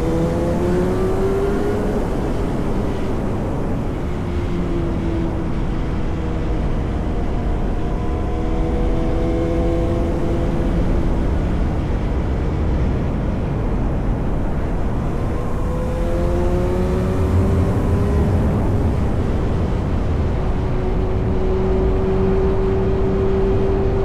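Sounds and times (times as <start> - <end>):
road and wind noise: 0.0 - 24.0
motorcycle engine cruising: 7.4 - 24.0.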